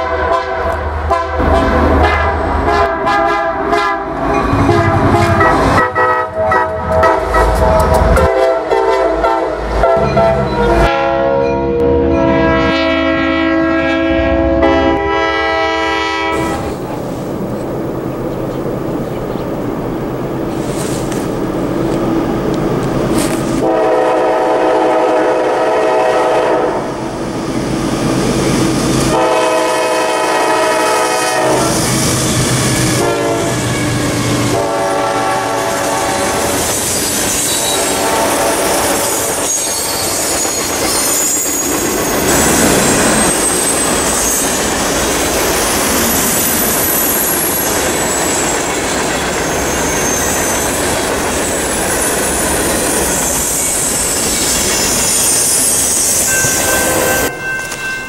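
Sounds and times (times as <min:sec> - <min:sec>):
locomotive air horn blasts: 0:00.0 - 0:16.7, 0:23.6 - 0:26.9, 0:29.1 - 0:31.9, 0:33.0 - 0:33.7, 0:34.5 - 0:36.6, 0:37.6 - 0:39.6, 0:56.3 - 0:57.3
high-pitched wheel squeal: 0:36.6 - 0:58.0.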